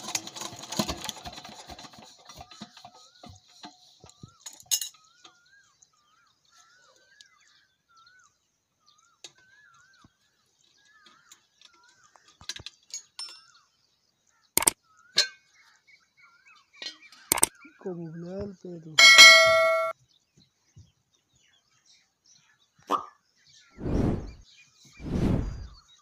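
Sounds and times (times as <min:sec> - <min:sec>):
metallic tool clinks: 0:19.0 - 0:19.9.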